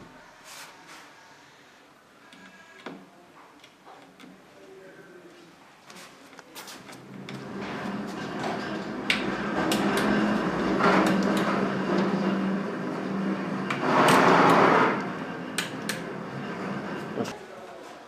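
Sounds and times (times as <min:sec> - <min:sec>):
scrape: 0:00.2 - 0:01.8
low hum: 0:07.0 - 0:17.4.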